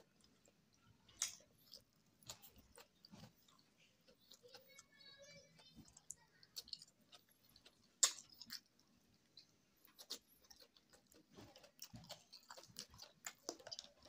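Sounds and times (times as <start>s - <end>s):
person chewing: 0.0s - 14.0s
lip smacks: 5.9s - 8.8s.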